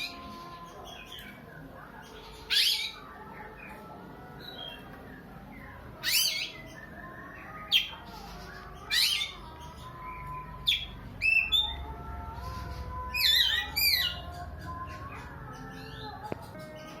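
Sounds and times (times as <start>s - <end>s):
magpie-robin calling: 0.0s - 3.7s, 5.9s - 11.8s, 13.1s - 14.4s.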